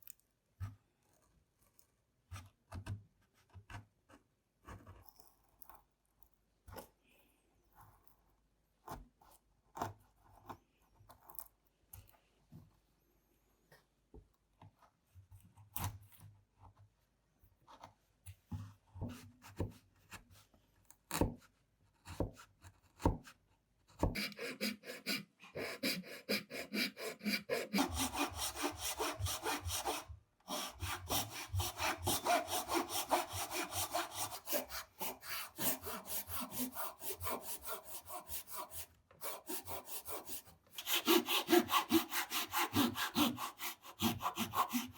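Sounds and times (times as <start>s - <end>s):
hand saw cutting wood: 24.0s - 44.9s.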